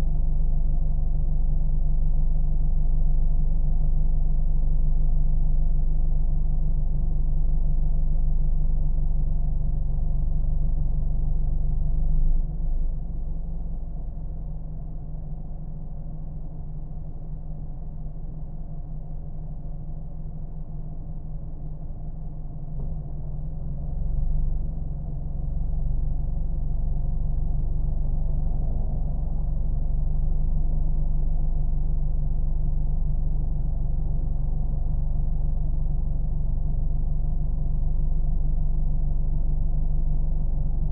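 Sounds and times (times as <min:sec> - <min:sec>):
car engine running: 0:22.7 - 0:40.9.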